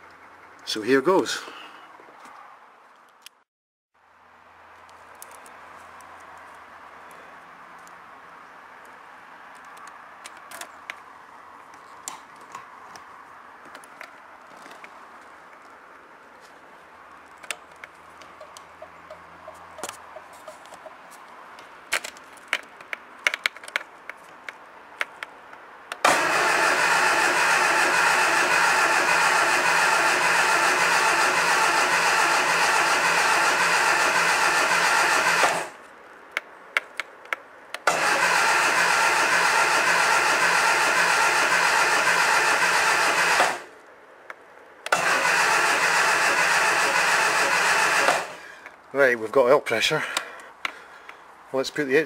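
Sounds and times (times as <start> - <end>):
starter motor cranking engine: 26.0 - 35.8, 37.8 - 43.7, 44.9 - 48.5.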